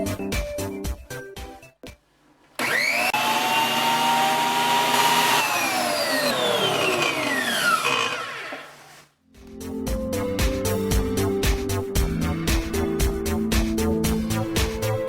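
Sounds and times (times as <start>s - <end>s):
jointer motor whine: 2.6s - 9.0s.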